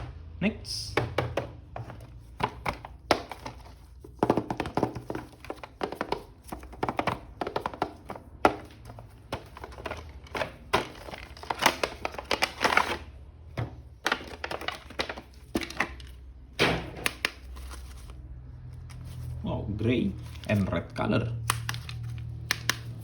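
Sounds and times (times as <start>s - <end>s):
plastic packaging crinkling: 8.6s - 13.2s, 13.9s - 16.2s, 20.1s - 23.0s.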